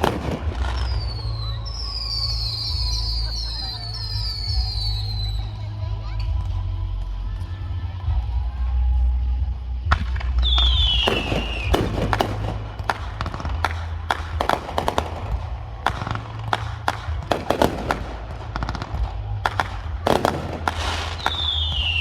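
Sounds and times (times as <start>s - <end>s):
falling firework whistle: 0.0s - 5.5s, 10.4s - 22.0s
fireworks bangs and crackling: 0.0s - 22.0s.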